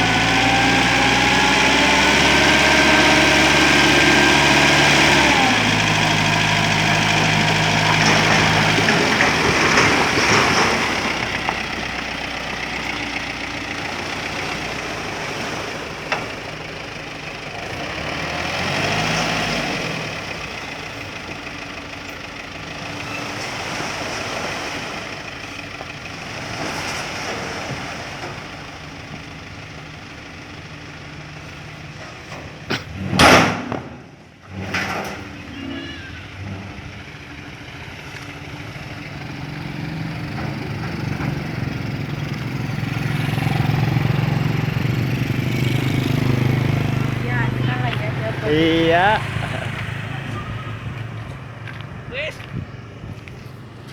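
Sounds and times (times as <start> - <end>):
diesel engine idling: 0.0 - 34.5, 35.2 - 53.9.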